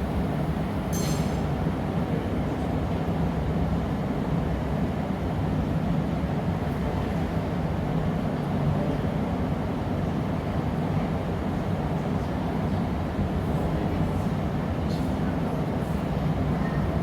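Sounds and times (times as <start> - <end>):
ringing clink: 1.0 - 1.4.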